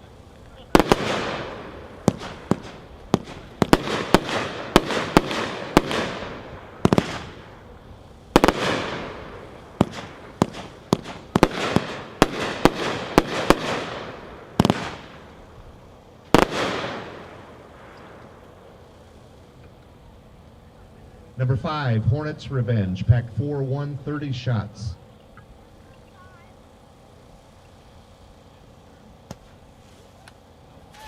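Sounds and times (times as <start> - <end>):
fireworks sharp bangs: 0.0 - 20.7.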